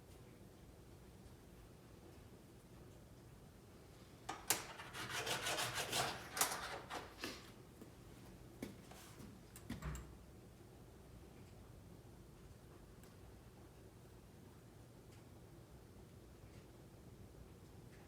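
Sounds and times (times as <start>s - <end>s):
file scraping metal: 4.6s - 7.2s.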